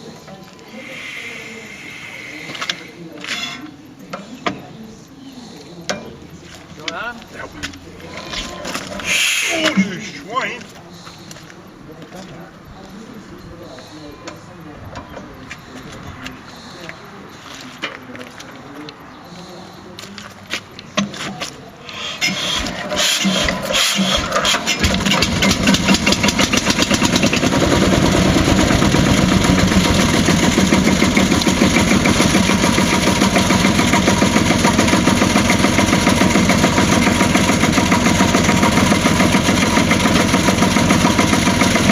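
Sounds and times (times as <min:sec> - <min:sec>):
diesel tractor engine starting: 0:00.7 - 0:03.3, 0:06.8 - 0:11.4, 0:21.8 - 0:41.9.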